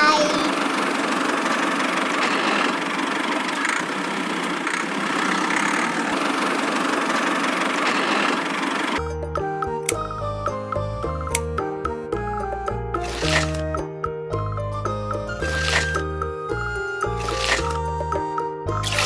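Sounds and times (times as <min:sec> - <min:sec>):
music: 0:09.0 - 0:19.0.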